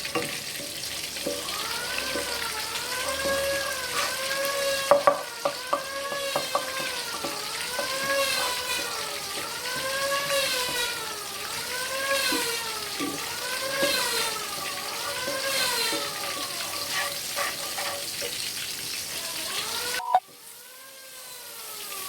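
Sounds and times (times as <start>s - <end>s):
food frying in a pan: 0.0s - 22.0s
spatula clacking against pan: 15.3s - 18.4s
wavering pitched tone: 20.0s - 20.2s.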